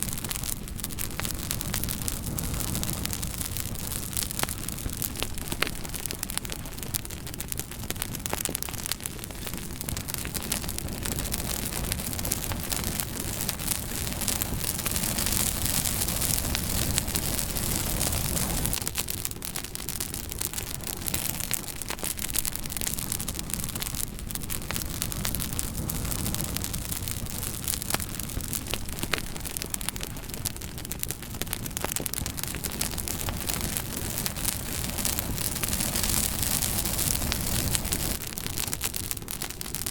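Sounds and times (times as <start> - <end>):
wood fire crackling and popping: 0.0 - 39.9
steady rushing hiss: 10.4 - 18.9, 33.2 - 38.2.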